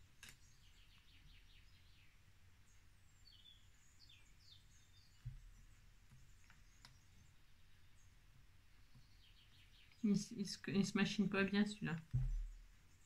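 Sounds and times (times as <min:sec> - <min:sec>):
faint birds chirping: 0:00.0 - 0:13.0
soft low bump: 0:12.1 - 0:12.7.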